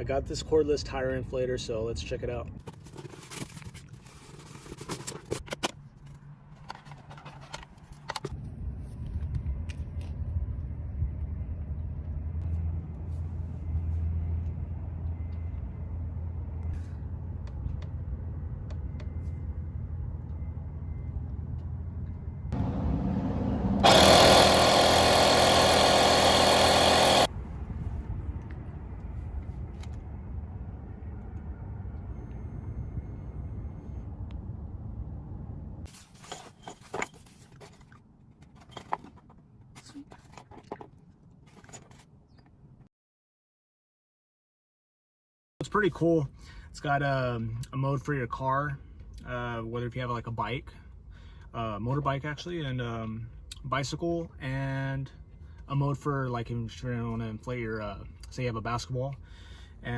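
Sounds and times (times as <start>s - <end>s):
steady low hum: 8.4s - 35.9s
piston compressor buzzing: 23.8s - 27.3s.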